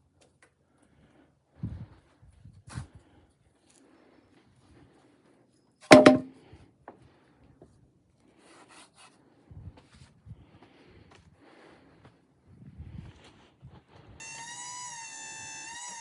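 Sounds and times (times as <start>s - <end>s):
wooden board knocking: 5.9s - 6.3s.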